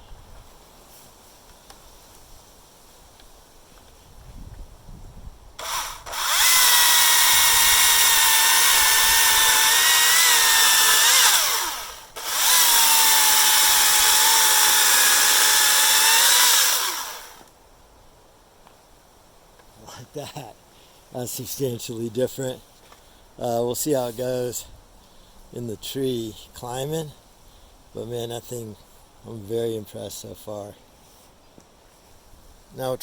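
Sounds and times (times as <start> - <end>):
chainsaw cutting logs: 5.6 - 17.5.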